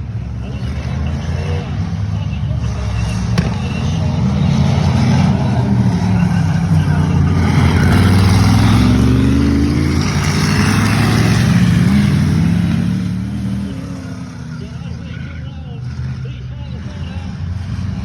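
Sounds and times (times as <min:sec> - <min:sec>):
racing car engines accelerating: 0:00.0 - 0:18.0.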